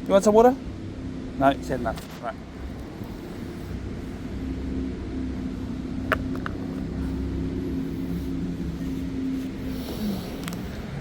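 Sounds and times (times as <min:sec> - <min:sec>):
distant boat engine: 0:00.0 - 0:11.0.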